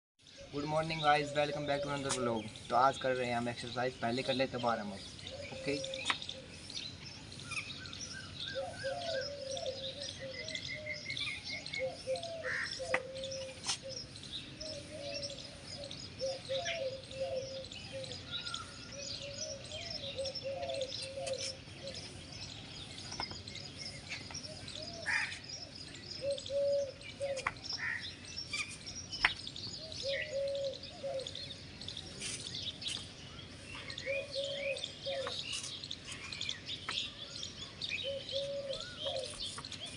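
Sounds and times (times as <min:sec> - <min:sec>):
birds chirping: 0:00.2 - 0:39.9
low warbling bird call: 0:33.4 - 0:37.2.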